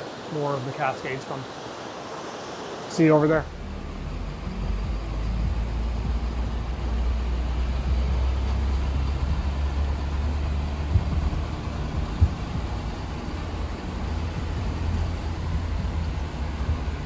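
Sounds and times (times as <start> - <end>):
car engine and road rumble: 3.4 - 17.0.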